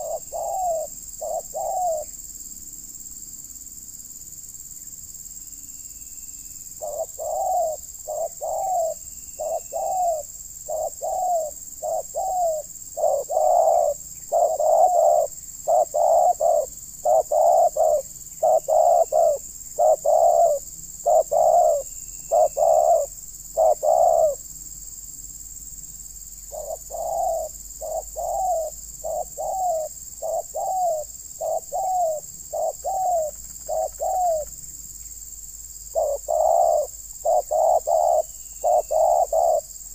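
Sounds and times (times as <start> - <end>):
doves cooing: 0.0 - 2.1, 6.8 - 24.4, 26.5 - 34.6, 35.9 - 39.8
high-pitched insect drone: 0.0 - 39.9.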